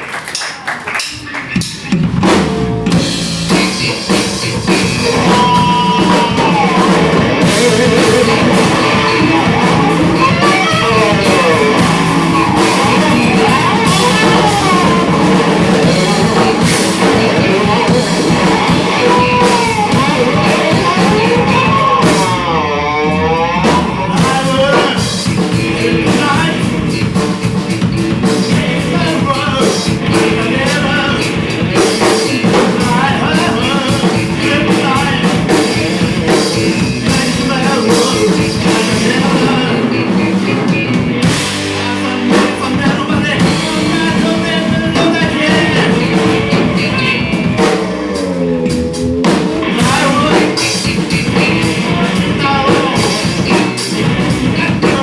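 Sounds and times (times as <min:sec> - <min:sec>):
rock band playing live: 0:00.0 - 0:55.0
melodic line like singing: 0:02.7 - 0:27.1.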